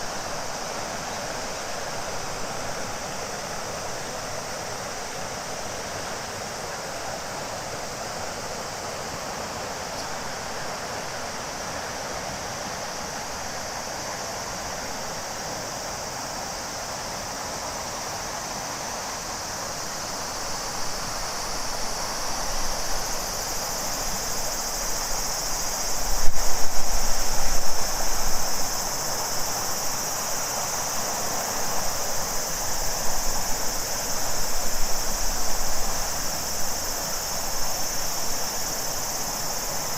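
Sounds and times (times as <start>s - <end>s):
cicadas chorus: 0.0s - 39.9s
river water flowing: 0.0s - 39.9s.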